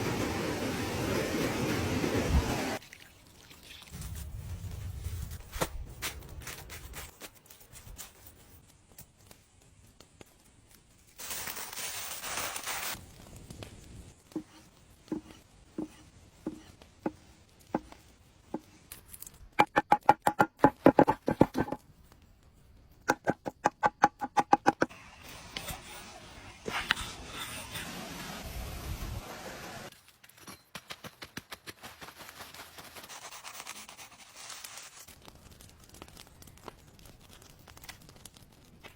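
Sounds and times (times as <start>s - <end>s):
hiss: 24.9s - 29.9s.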